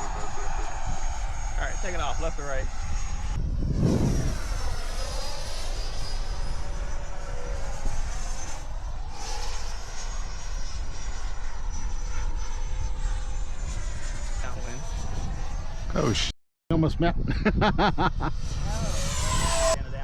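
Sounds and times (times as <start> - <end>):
wind on microphone: 0.0 - 11.4, 12.5 - 20.0
model jet whine passing: 0.0 - 16.3, 18.1 - 20.0.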